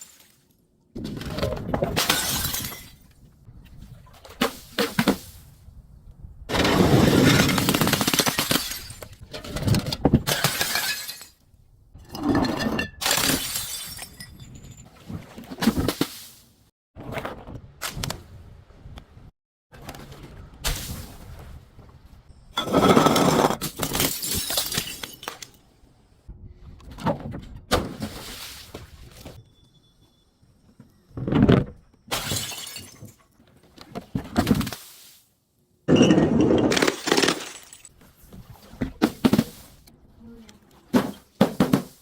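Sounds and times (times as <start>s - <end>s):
glass smashing: 8.2s - 9.1s, 10.3s - 11.4s, 23.6s - 25.4s, 32.1s - 33.2s, 36.2s - 37.9s.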